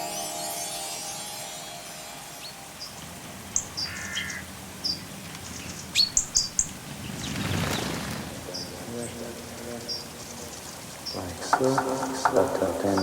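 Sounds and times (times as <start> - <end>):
birds chirping: 0.0 - 13.0
faint steady hiss: 0.0 - 13.0
bird lower call: 3.6 - 4.5.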